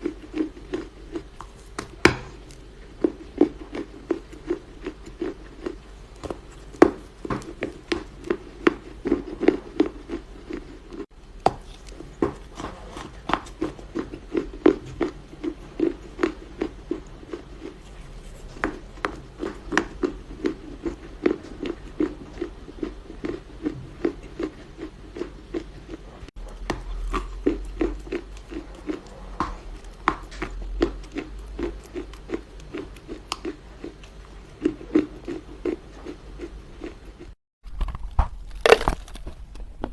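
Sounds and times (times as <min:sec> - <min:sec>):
dry clay crunching: 0:37.6 - 0:39.9.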